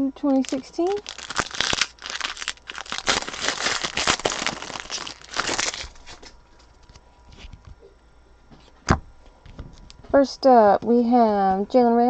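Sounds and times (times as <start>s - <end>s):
wrapper crinkling and tearing: 0.3s - 7.5s.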